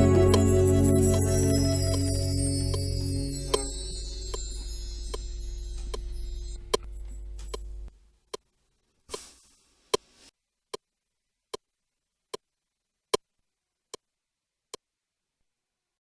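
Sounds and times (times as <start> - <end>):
short hiss: 9.1 - 10.3.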